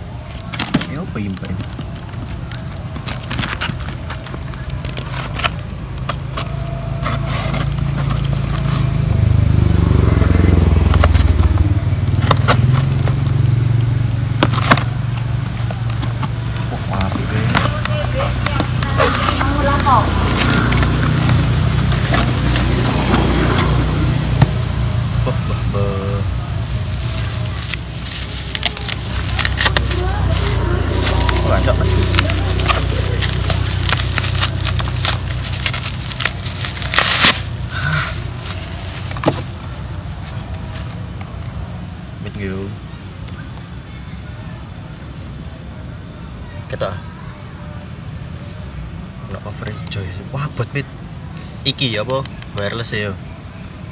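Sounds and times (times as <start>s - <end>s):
vehicle engine rumble: 0.0s - 53.9s
bubble-wrap bag crinkling: 0.2s - 9.1s, 14.4s - 23.6s, 26.5s - 41.4s
blade cutting packing tape: 17.4s - 23.7s, 27.4s - 39.4s.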